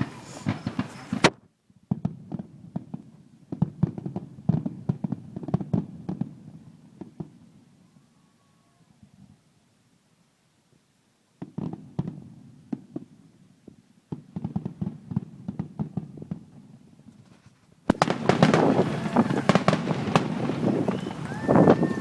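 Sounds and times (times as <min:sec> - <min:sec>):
fireworks crackling and popping: 0:00.0 - 0:07.7, 0:11.4 - 0:22.0.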